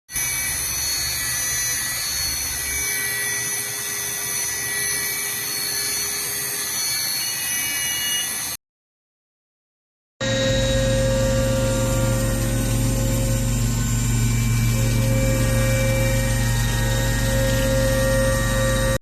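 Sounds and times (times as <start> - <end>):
milling machine whining: 0.1 - 8.6, 10.2 - 19.0
low hum: 10.2 - 19.0.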